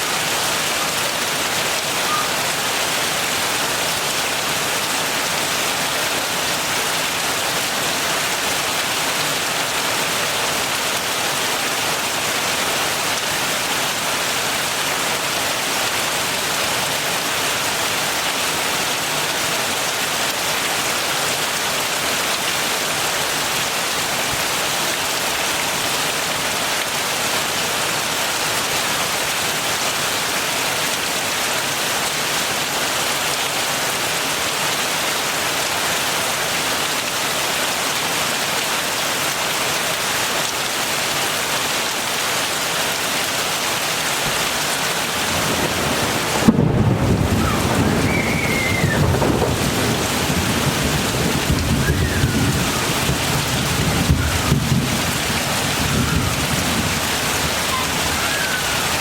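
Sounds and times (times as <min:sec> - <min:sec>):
heavy rain hissing: 0:00.0 - 0:33.0, 0:33.6 - 0:59.0
thunder crack and rumble: 0:45.3 - 0:57.0.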